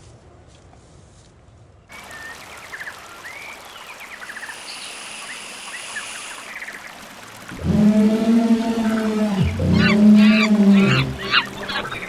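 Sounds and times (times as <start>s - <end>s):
outdoor hiss: 1.9s - 12.0s
birds chirping: 7.5s - 12.0s.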